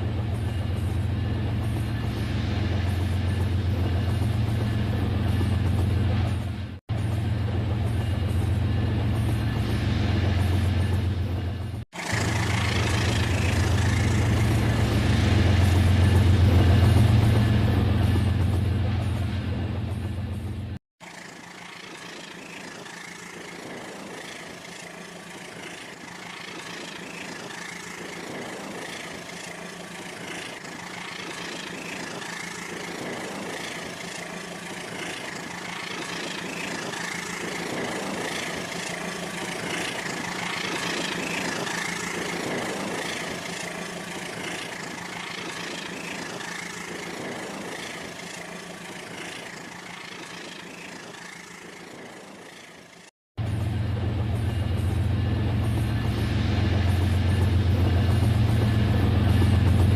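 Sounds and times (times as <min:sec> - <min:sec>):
wheels on rails: 0:00.0 - 0:59.9
model train motor hum: 0:12.0 - 0:16.2, 0:21.0 - 0:53.1.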